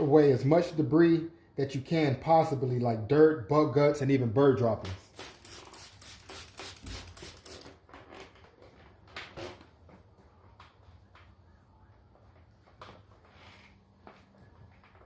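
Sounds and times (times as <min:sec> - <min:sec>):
trigger spray bottle squirting: 0:05.0 - 0:07.8.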